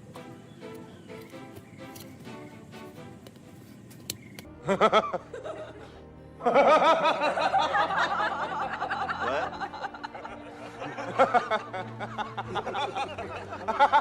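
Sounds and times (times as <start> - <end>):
background music: 0.0 - 14.0
person laughing: 4.6 - 14.0.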